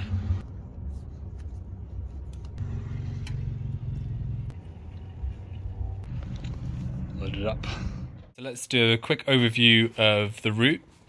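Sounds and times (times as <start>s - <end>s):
vehicle engine rumble: 0.0s - 8.4s.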